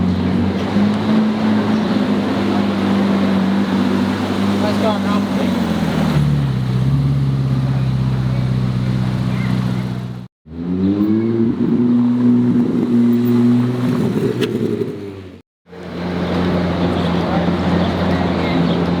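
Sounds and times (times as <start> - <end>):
car engine running: 0.1 - 10.3.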